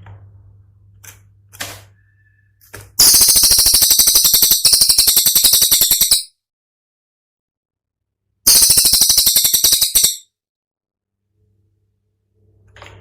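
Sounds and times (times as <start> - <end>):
songbird rapid rattling trill: 3.0 - 6.3, 8.5 - 10.2.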